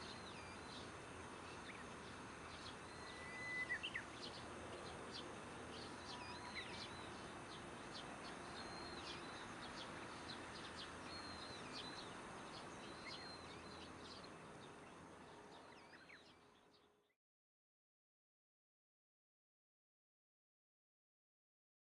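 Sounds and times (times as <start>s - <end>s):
outdoor background hiss: 0.0s - 17.2s
small birds chirping: 0.0s - 17.2s
bird whistles: 2.9s - 4.0s.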